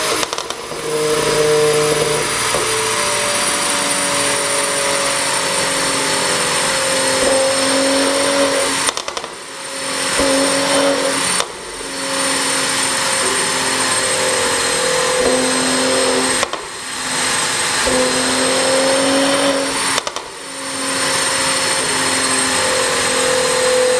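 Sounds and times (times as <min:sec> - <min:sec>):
exhaust pops: 0:00.0 - 0:01.0, 0:08.7 - 0:09.4, 0:15.2 - 0:16.8, 0:19.8 - 0:20.4
car engine revving: 0:00.0 - 0:23.9.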